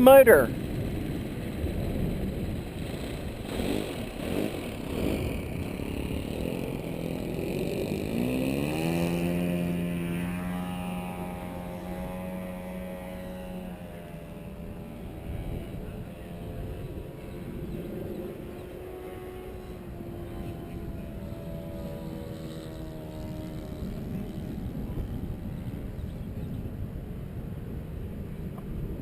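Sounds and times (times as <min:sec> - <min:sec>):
wind buffeting microphone: 0:00.0 - 0:29.0
model plane motors whining: 0:00.5 - 0:28.2.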